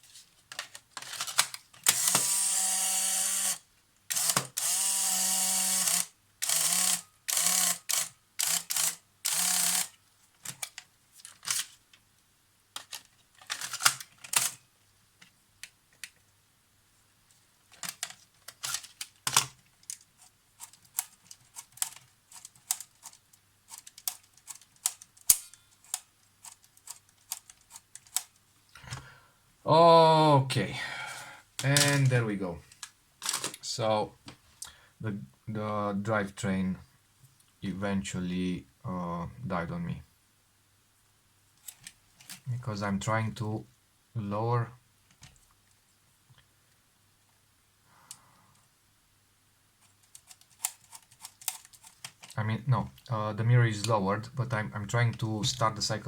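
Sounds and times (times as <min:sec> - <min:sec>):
camera drive motor running: 0:02.0 - 0:09.9.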